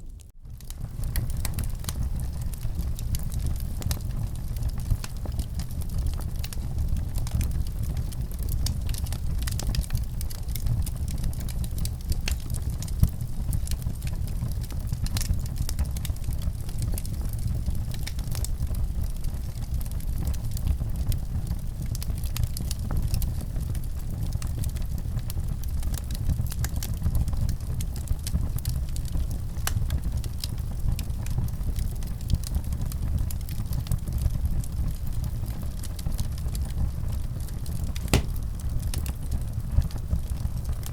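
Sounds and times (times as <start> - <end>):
fire crackling in fireplace: 0.0 - 40.9.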